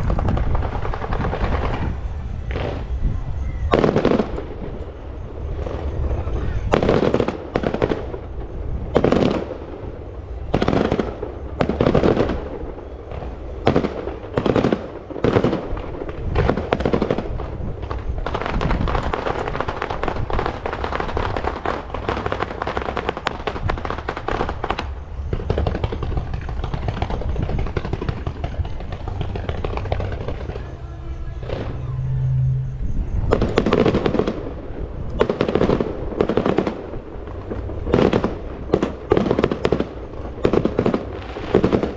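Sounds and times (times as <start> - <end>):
fireworks banging: 0.0 - 41.9
fireworks crackling: 0.0 - 41.9.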